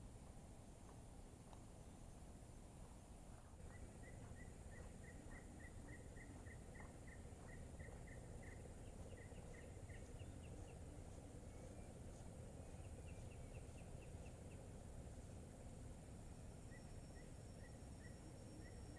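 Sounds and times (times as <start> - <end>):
low background hiss: 0.0 - 18.9.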